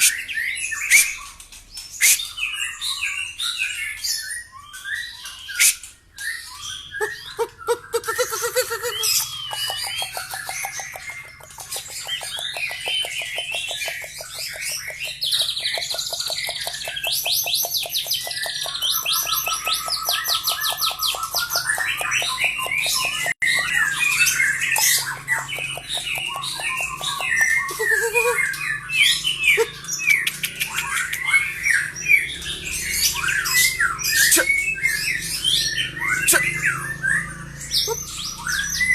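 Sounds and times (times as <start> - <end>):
bird singing varied song: 0.0 - 38.9
bird rattling trill: 8.2 - 24.2.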